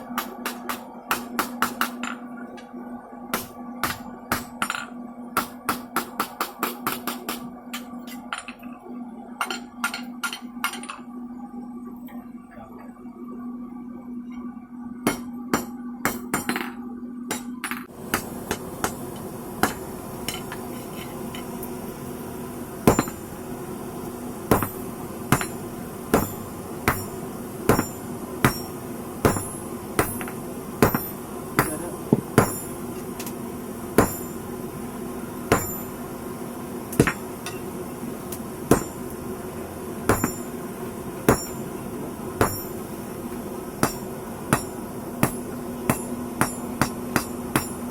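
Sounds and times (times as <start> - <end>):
hammer striking metal on anvil: 0.0 - 2.2, 3.3 - 8.6, 15.0 - 19.0, 19.6 - 20.6, 22.9 - 23.3, 24.5 - 33.2, 34.0 - 34.4, 35.5 - 36.0, 36.9 - 37.7, 38.7 - 39.1, 40.1 - 40.6, 41.3 - 41.7, 42.4 - 42.8, 43.8 - 47.9.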